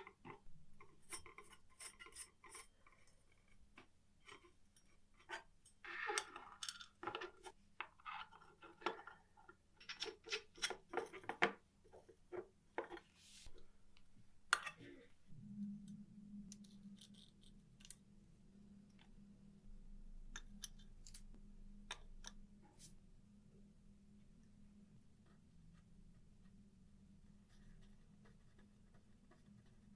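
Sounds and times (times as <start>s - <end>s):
low steady hum: 13.1s - 29.9s.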